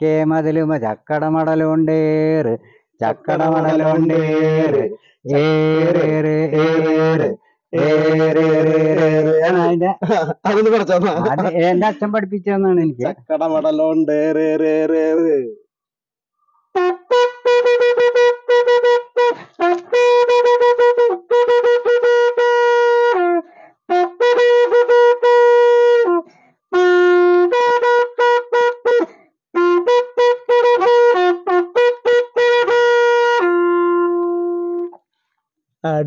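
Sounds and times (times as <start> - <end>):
leaf-stalk pipe playing folk tune: 16.8 - 35.0.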